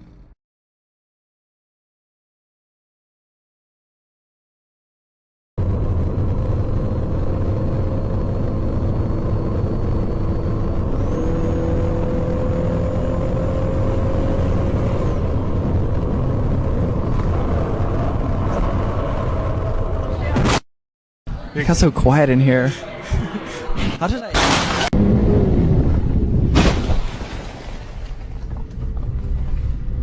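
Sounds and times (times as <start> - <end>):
faint drone: 5.6 - 20.4
car driving rumble: 5.6 - 20.5, 22.7 - 30.0.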